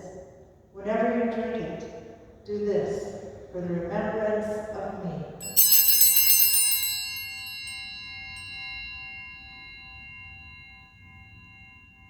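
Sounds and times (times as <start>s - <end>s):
bell ringing: 5.4s - 12.0s.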